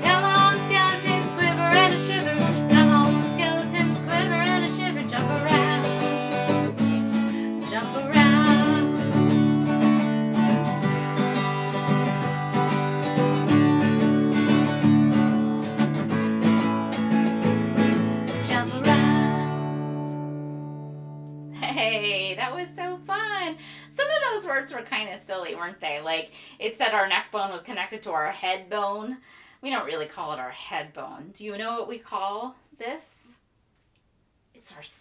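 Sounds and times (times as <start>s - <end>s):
acoustic guitar strumming: 0.0s - 24.7s.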